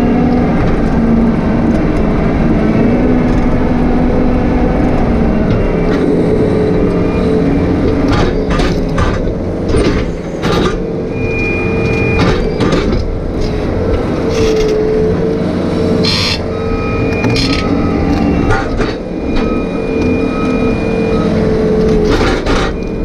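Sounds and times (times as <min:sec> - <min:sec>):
excavator engine running: 0:00.0 - 0:23.0
metallic clanks and knocks: 0:08.0 - 0:10.9, 0:11.8 - 0:14.8
high squeal: 0:11.0 - 0:12.8, 0:15.8 - 0:21.8.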